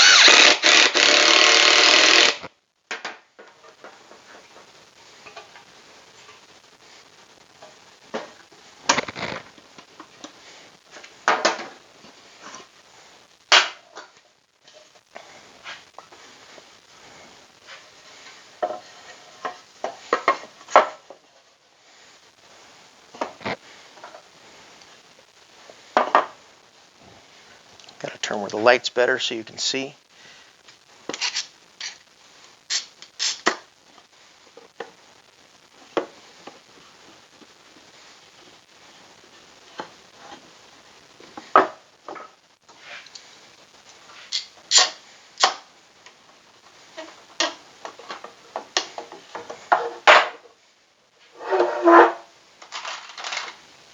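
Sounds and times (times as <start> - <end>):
wooden pieces knocking and clattering: 51.5 - 53.6.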